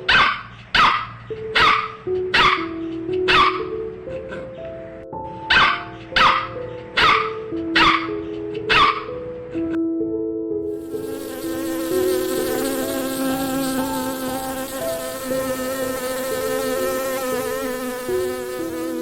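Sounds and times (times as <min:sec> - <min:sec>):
background music notes: 0:01.2 - 0:19.0
insect buzzing: 0:10.7 - 0:19.0.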